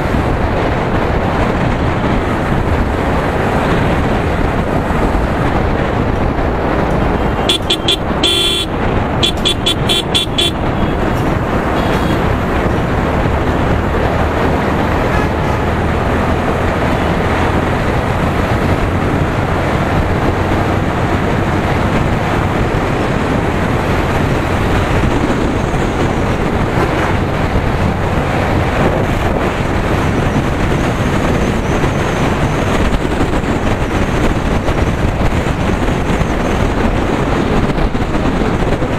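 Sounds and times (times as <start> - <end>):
motorcycle riding: 0.0 - 38.9
wind buffeting microphone: 0.0 - 38.9
vehicle horn tooting: 7.1 - 11.1, 11.7 - 12.3.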